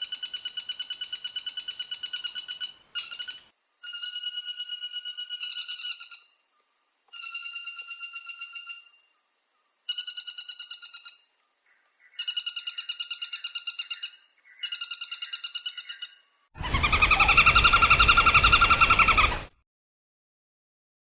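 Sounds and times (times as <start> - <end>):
woodpecker rattling call: 0.0 - 6.3, 9.9 - 19.5
lower bird call: 9.9 - 19.6.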